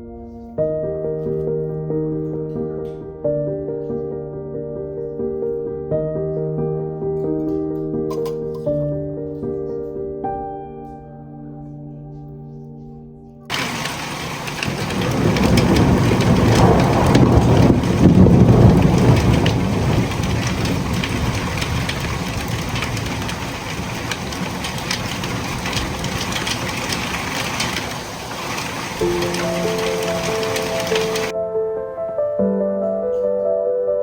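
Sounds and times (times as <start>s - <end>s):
steady rain: 13.5s - 31.3s.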